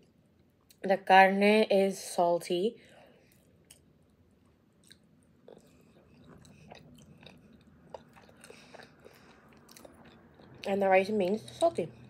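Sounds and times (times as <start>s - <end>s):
chewing with mouth clicks: 4.8s - 12.0s.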